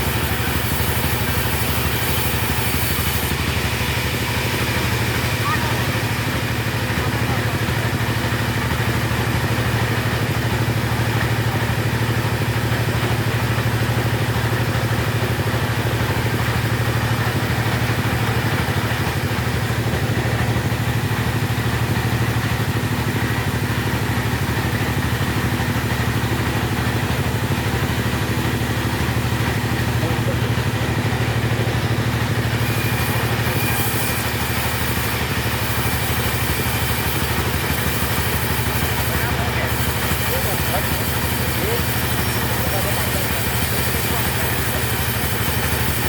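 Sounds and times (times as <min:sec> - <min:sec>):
chainsaw engine running: 0:00.0 - 0:46.0.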